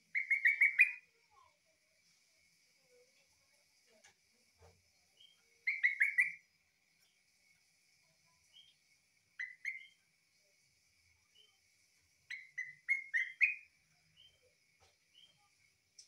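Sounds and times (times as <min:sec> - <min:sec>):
bird chirping: 0:00.0 - 0:01.1, 0:04.9 - 0:16.0.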